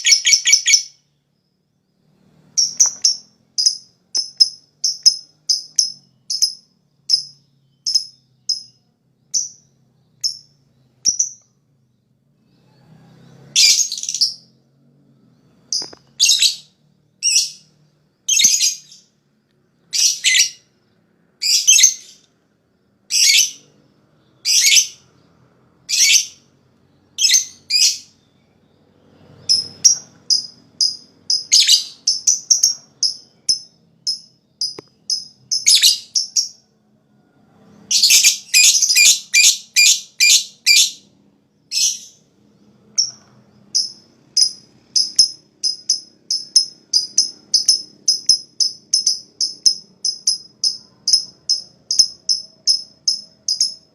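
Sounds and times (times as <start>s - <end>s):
lovebird chirping: 0.0s - 53.9s
lovebird harsh chattering calls: 29.4s - 36.6s, 43.7s - 53.8s.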